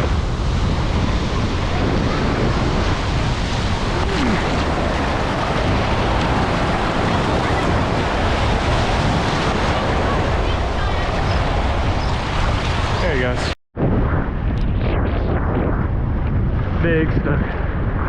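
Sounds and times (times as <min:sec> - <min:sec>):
waves washing on shore: 0:00.0 - 0:13.6
wind buffeting microphone: 0:00.0 - 0:18.0.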